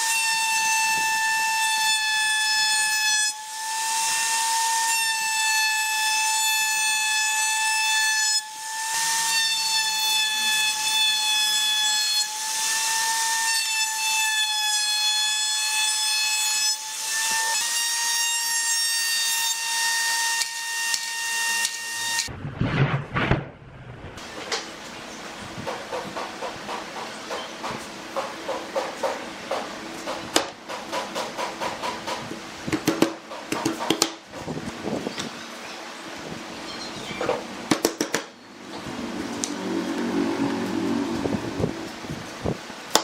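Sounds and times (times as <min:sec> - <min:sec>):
power tool whining: 0:38.6 - 0:42.6.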